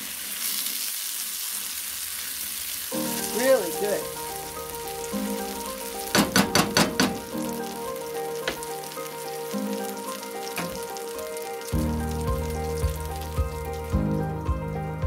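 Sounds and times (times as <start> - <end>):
potato sizzling in oil: 0.0 - 15.0
soft background music: 2.9 - 15.0
spatula knocking on pan: 6.1 - 7.3.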